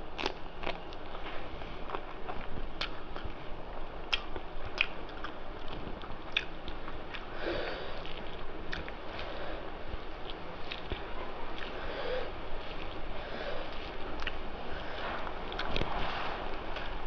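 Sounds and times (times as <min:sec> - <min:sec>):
chewing with wet mouth clicks: 0:00.2 - 0:03.4, 0:04.0 - 0:07.3, 0:08.0 - 0:09.3, 0:10.2 - 0:11.8, 0:13.7 - 0:14.4, 0:15.1 - 0:16.0.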